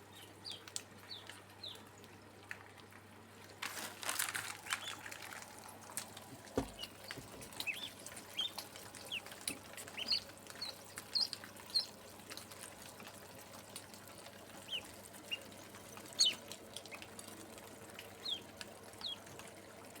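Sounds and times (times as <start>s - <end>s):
small birds chirping: 0.0s - 2.0s, 4.6s - 5.3s, 6.4s - 12.5s, 14.0s - 17.4s, 18.1s - 19.3s
low thump: 6.6s - 7.4s.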